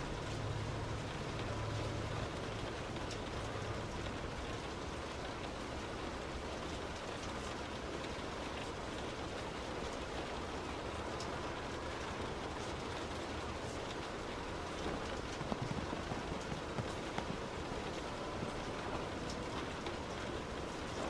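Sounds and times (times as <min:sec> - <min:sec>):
heavy rain drumming on car: 0:00.0 - 0:21.0
tyres hissing on wet road: 0:00.0 - 0:21.0
low hum: 0:10.3 - 0:21.0.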